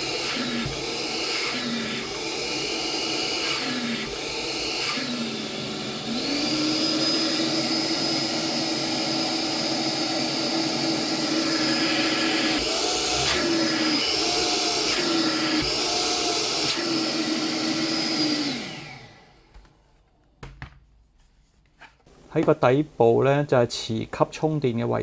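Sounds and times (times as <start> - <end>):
vacuum motor whining: 0.0 - 20.0.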